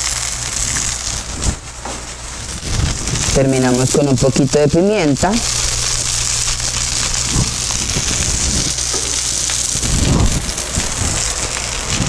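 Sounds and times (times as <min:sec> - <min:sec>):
food sizzling on griddle: 0:00.0 - 0:12.0
low hum: 0:00.0 - 0:12.0.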